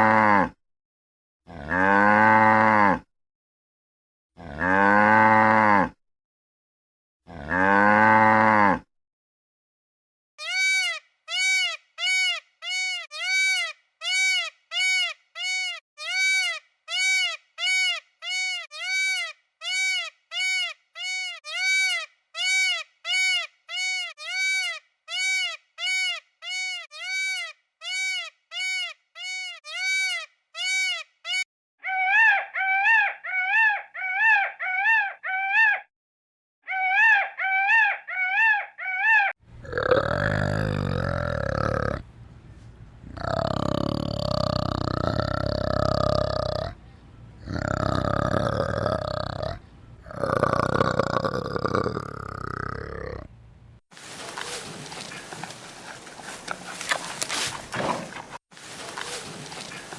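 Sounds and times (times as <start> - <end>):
animal giving high calls: 10.4 - 35.9, 36.7 - 42.0
wavering animal calls: 10.4 - 35.9, 36.7 - 42.0, 43.1 - 46.8, 47.4 - 53.3
low rough animal sound: 39.5 - 42.1, 43.0 - 46.8, 47.4 - 53.4.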